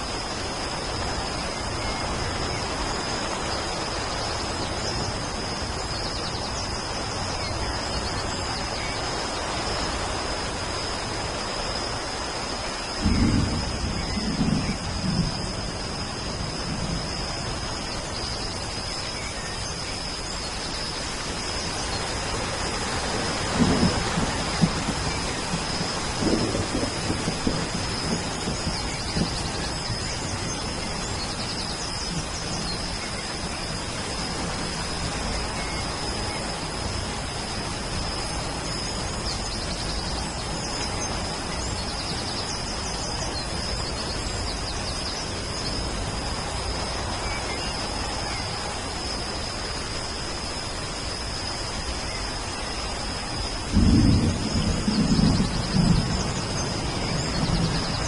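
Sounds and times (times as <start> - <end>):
rain falling: 0.0 - 58.0
thunder rumbling: 13.0 - 17.9, 22.6 - 42.2, 53.6 - 58.0.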